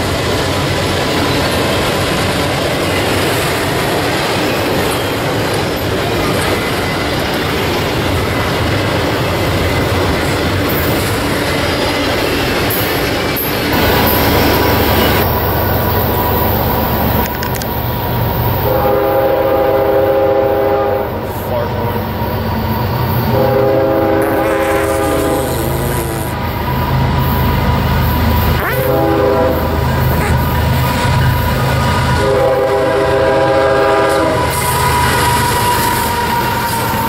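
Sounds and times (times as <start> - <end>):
locomotive horn chord: 18.6 - 22.0, 23.3 - 26.4, 28.5 - 30.5, 32.2 - 34.6.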